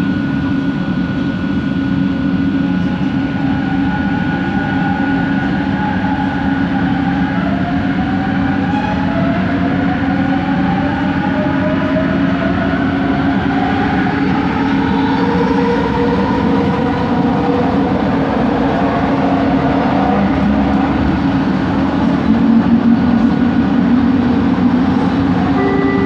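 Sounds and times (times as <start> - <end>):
motor whine gliding in pitch: 0.0 - 26.0
train low rumble: 0.0 - 26.0.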